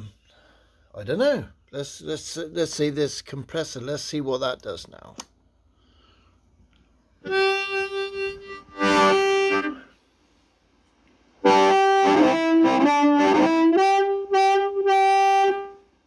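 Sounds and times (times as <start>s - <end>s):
harmonica through amp: 7.2s - 10.0s, 11.4s - 15.8s.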